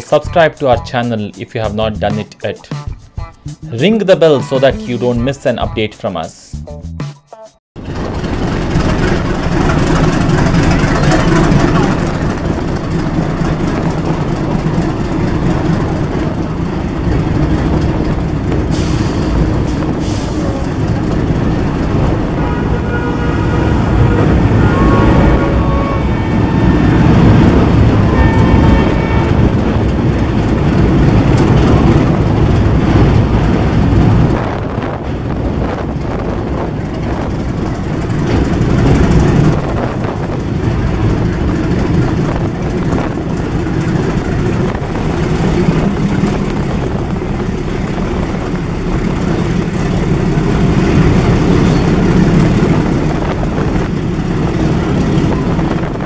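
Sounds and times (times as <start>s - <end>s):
wheels rumbling on rails: 0.0s - 6.7s, 7.8s - 56.0s
diesel train engine drone: 0.0s - 7.0s, 7.8s - 56.0s
train horn: 22.2s - 30.1s.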